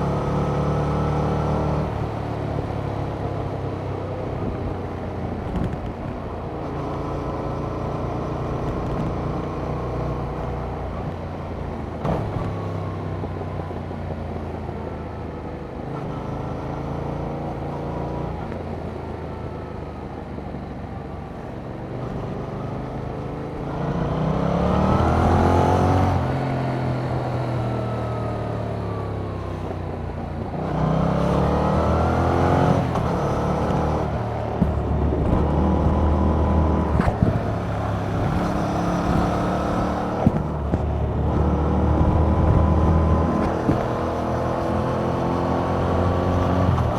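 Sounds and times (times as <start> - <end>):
motorcycle engine accelerating: 22.0 - 46.9.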